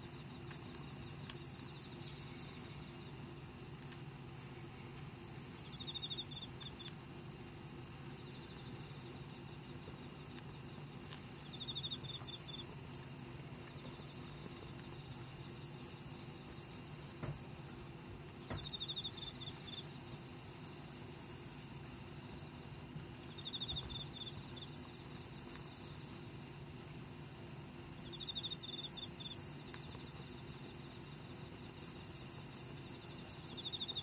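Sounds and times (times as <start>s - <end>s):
insect pulsed chirp: 18.4s - 20.4s, 23.2s - 34.0s
insect buzzing trill: 23.2s - 34.0s.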